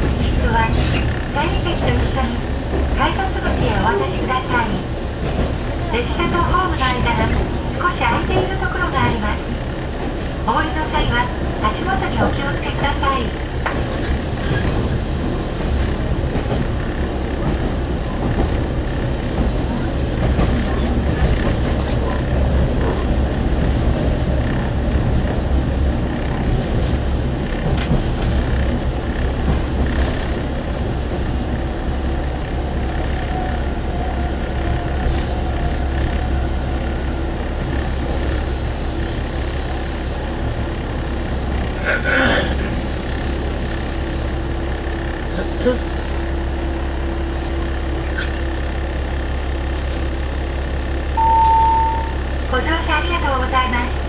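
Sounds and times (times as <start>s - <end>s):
diesel railcar engine and wheels: 0.0s - 54.0s
faint steady tone: 51.2s - 52.2s.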